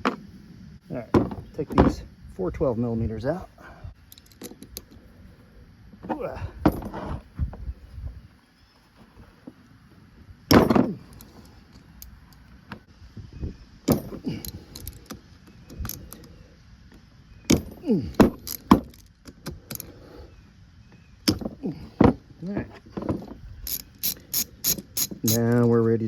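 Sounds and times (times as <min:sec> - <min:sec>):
metal parts clinking and knocking: 0:04.0 - 0:05.0, 0:10.5 - 0:12.5, 0:13.9 - 0:16.3, 0:17.5 - 0:19.9, 0:22.8 - 0:25.8.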